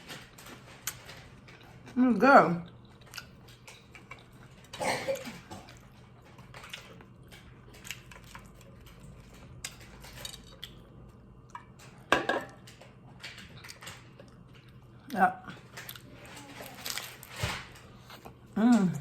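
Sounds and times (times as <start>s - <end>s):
plate and food clatter: 12.1s - 12.6s.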